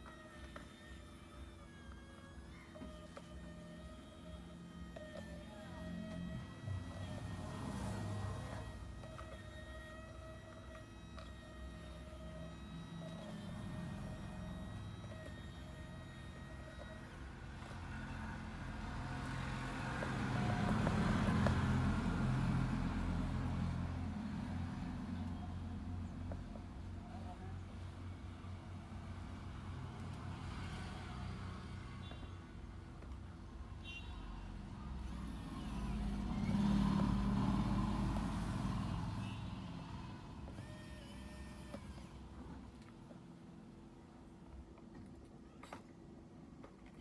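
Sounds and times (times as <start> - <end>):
vehicle engine passing by: 4.4 - 15.7, 16.8 - 33.2, 33.8 - 42.6.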